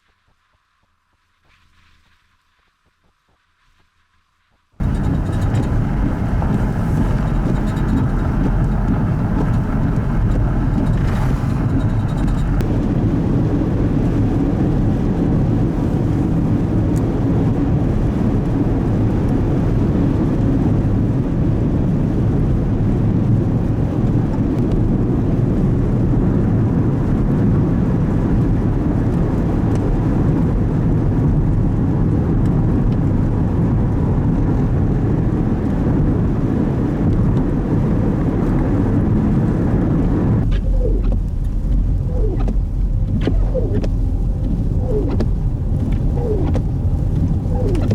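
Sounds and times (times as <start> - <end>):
vehicle noise: 4.8 - 21.2, 36.8 - 47.9
blizzard wind: 4.8 - 47.9.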